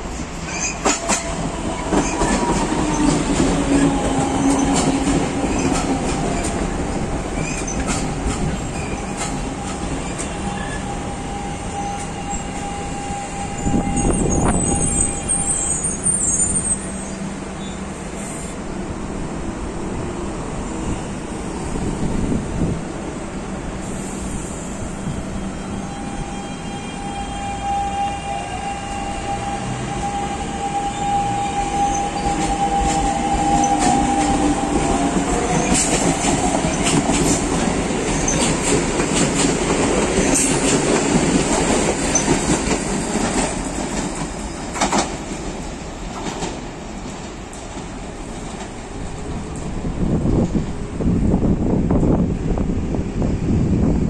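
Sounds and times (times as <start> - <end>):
electric train running past: 0.0 - 54.0
wheels clicking over rail joints: 0.5 - 10.4.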